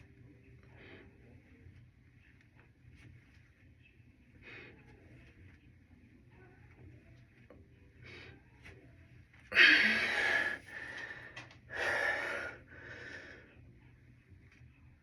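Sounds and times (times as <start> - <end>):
person breathing hard: 9.5 - 13.5.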